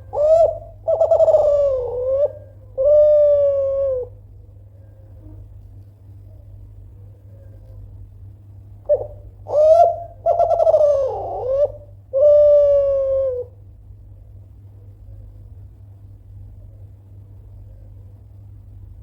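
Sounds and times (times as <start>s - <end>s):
dove cooing: 0.0s - 4.2s, 8.8s - 13.6s.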